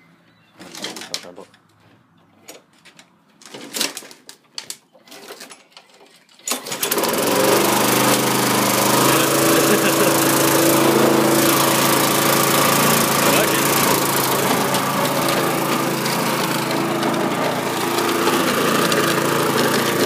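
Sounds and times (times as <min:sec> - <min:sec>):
lawn mower engine running: 0:06.5 - 0:20.0.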